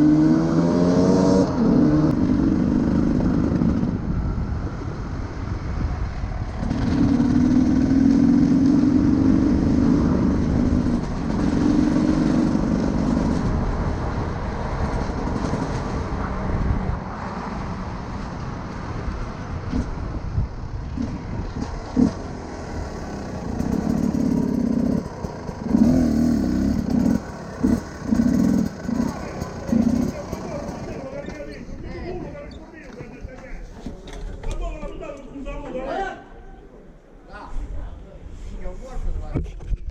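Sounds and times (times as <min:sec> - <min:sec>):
motorcycle engine running: 0:19.8 - 0:31.5.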